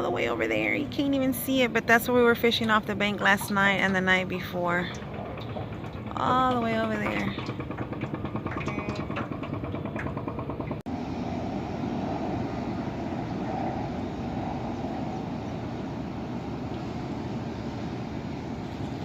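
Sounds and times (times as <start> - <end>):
small boat motor running: 0.3 - 12.9, 15.6 - 19.0.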